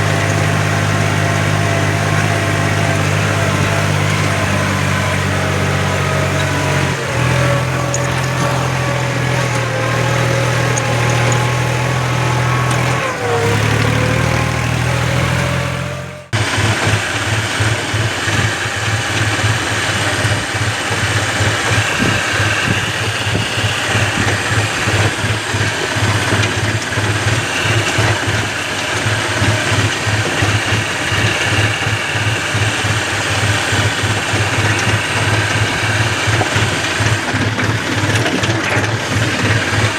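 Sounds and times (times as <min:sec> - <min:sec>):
engine chugging fast: 0:00.0 - 0:39.9
tractor diesel engine running: 0:00.0 - 0:39.9.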